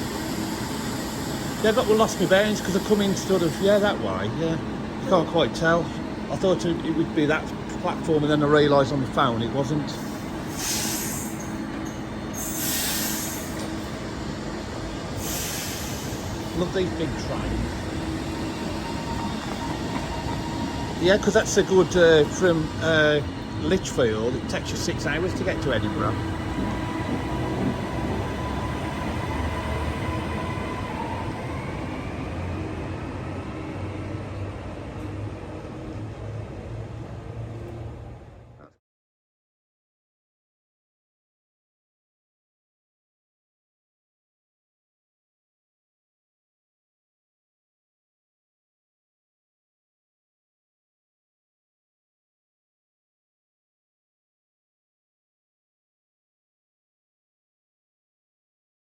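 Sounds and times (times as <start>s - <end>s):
train humming: 0.0s - 38.6s.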